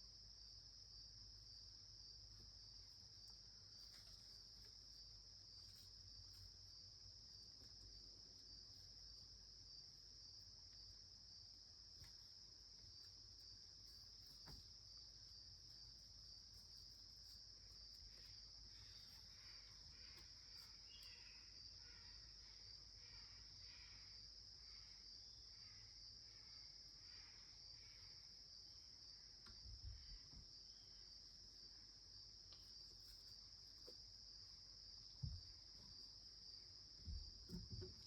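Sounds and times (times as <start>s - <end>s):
insects trilling: 0.0s - 38.0s
faint chirps: 12.0s - 31.8s.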